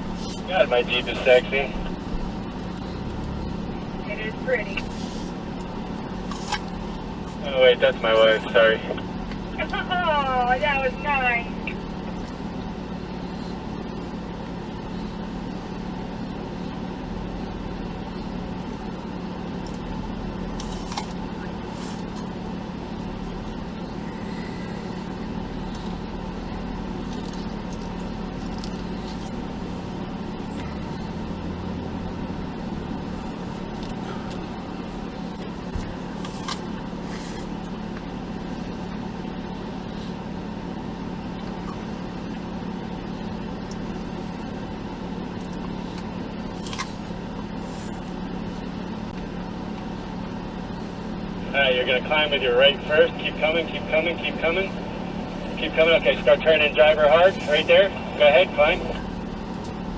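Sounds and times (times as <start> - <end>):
car engine running: 0.0 - 59.9.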